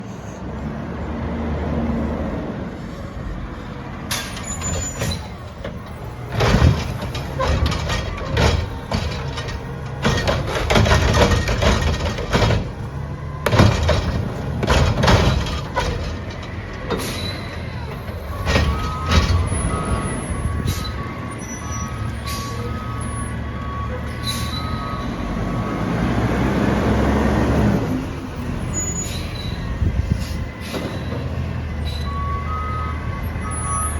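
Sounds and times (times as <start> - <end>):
garbage truck engine running: 2.3 - 33.9
recyclables crashing into truck: 4.1 - 20.8.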